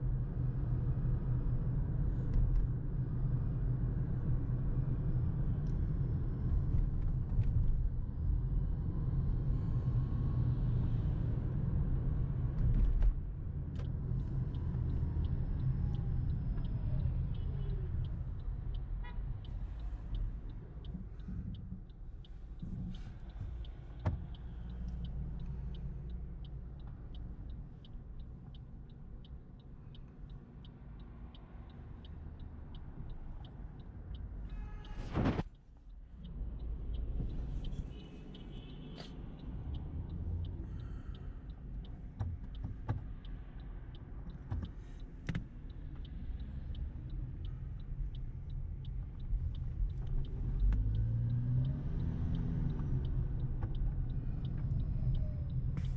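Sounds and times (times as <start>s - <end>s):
car engine low rumble: 0.0s - 55.9s
faint regular ticking: 14.3s - 34.5s, 35.5s - 55.8s.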